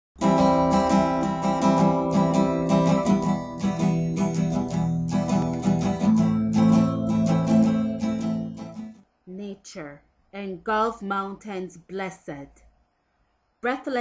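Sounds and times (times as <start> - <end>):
acoustic guitar strumming: 0.2 - 9.0.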